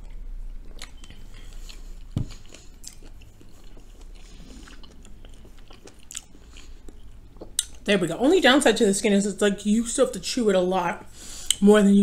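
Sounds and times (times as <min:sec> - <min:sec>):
close chewing of food: 0:00.0 - 0:07.9.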